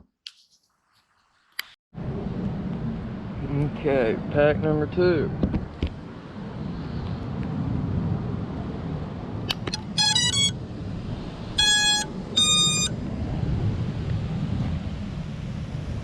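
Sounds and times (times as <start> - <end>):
wind rumble on microphone: 2.0 - 16.0
long beeps: 9.7 - 10.6, 11.6 - 12.9
electronic power-up tones: 9.8 - 10.6, 11.6 - 12.9.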